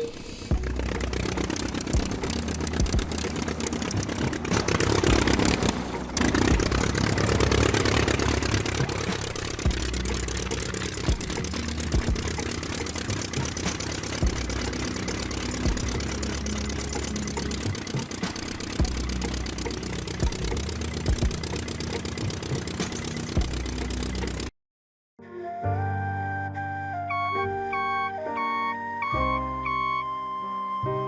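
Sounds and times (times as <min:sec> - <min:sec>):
small engine running: 0:00.0 - 0:24.5
sharp clicks and knocks: 0:00.5 - 0:24.5.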